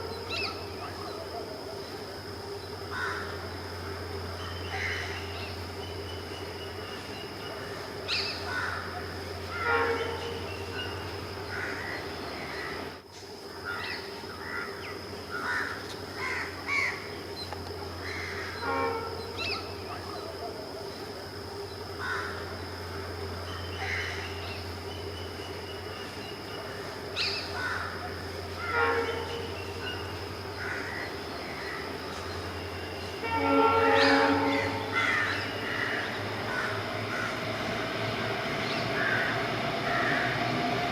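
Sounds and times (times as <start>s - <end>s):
steady low hum: 0.0s - 40.9s
crows cawing: 2.9s - 3.4s, 4.7s - 5.2s, 8.4s - 9.9s, 11.4s - 12.9s, 13.7s - 17.0s, 18.0s - 18.6s, 22.0s - 22.4s, 27.2s - 29.0s, 30.5s - 31.9s, 33.4s - 37.5s, 39.0s - 40.4s
birds calling: 23.2s - 40.8s.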